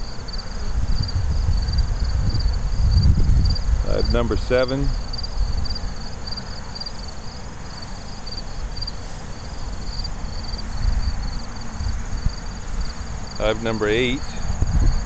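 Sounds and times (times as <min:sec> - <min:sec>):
crickets chirping: 0:00.0 - 0:15.0
honey bees buzzing: 0:00.0 - 0:15.0.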